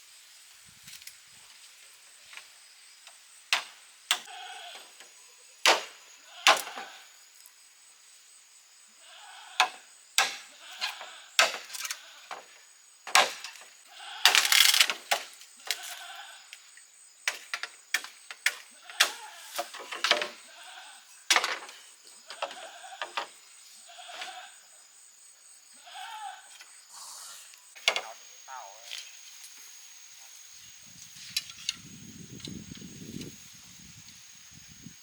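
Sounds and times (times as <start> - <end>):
goats bleating: 4.2 - 4.9, 9.0 - 9.7, 10.5 - 11.4, 13.9 - 14.6, 15.6 - 16.6, 18.7 - 19.6, 20.3 - 21.2, 22.3 - 23.2, 23.8 - 24.7, 25.8 - 26.6.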